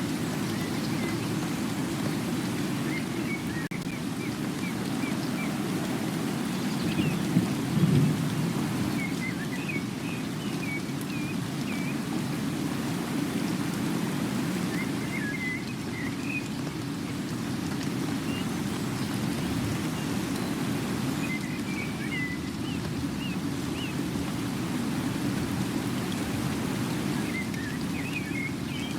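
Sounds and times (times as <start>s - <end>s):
rain falling: 0.0s - 28.9s.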